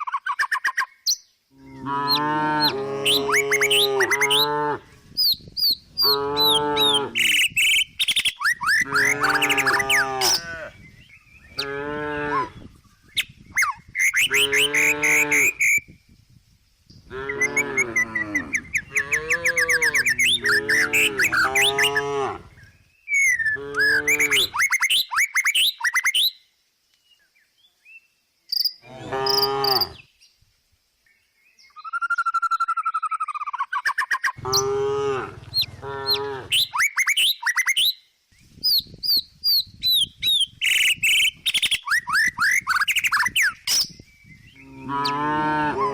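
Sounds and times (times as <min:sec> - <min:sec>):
birds chirping: 0:00.0 - 0:15.9, 0:16.9 - 0:26.0, 0:31.5 - 0:37.8, 0:39.9 - 0:45.6
cow mooing: 0:01.6 - 0:04.9, 0:06.0 - 0:07.2, 0:08.8 - 0:10.7, 0:11.6 - 0:12.6, 0:14.3 - 0:15.6, 0:17.1 - 0:22.5, 0:28.9 - 0:30.0, 0:34.4 - 0:36.6, 0:44.6 - 0:45.9.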